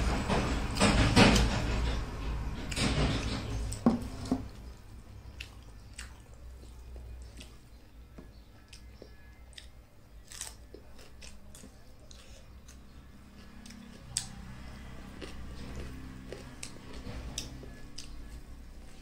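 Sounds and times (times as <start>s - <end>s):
chewing with mouth clicks: 4.5s - 7.8s, 8.6s - 19.0s.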